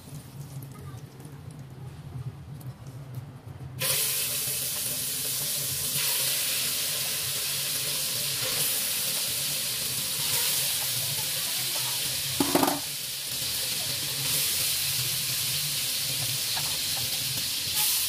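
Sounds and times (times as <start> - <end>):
butter sizzling in a wok: 3.8 - 18.0
chicken sizzling in hot fat: 3.8 - 18.0.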